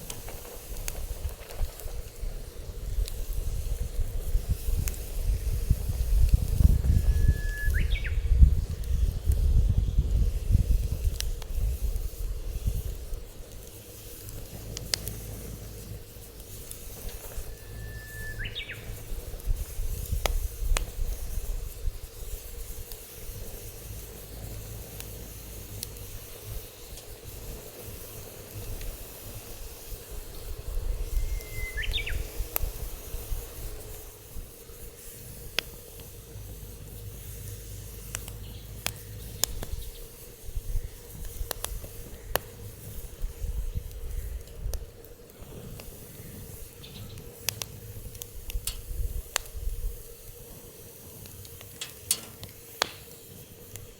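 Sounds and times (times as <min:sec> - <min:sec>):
wind on microphone: 0:00.0 - 0:13.5, 0:14.4 - 0:24.9, 0:39.4 - 0:51.3
wood fire crackling: 0:00.0 - 0:53.9
bird chirping: 0:07.3 - 0:08.3, 0:17.5 - 0:19.0, 0:31.2 - 0:32.3.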